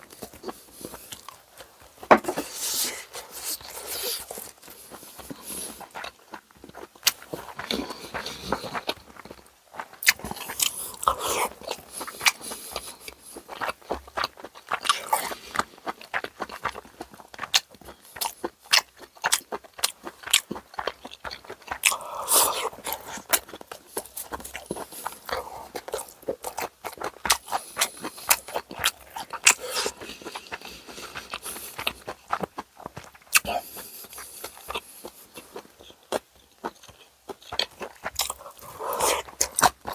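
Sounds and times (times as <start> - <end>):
chewing and biting food: 0.0 - 39.9.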